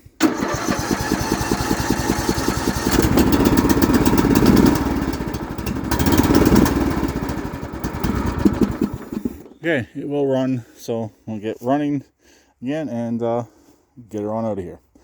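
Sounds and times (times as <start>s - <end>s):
lawn tractor engine running: 0.2s - 9.6s.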